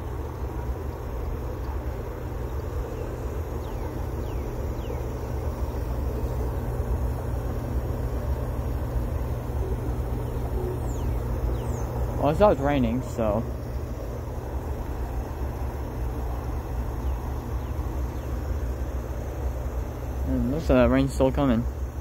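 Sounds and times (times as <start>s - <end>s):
distant freight train rumble: 0.0s - 22.0s.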